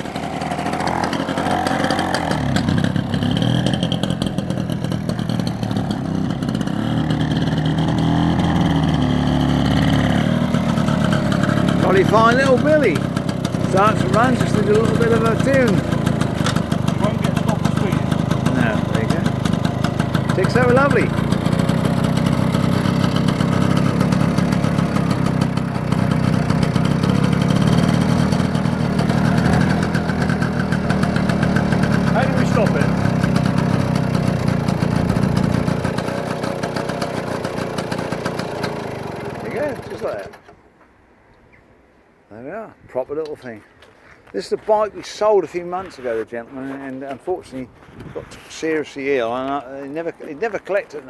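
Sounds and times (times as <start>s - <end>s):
two-stroke motorcycle engine revving: 0.0s - 40.5s.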